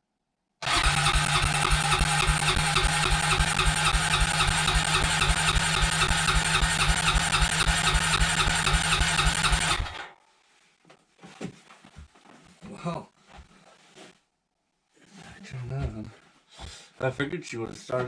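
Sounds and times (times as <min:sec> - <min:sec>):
engine cranking on starter: 0:00.6 - 0:10.1.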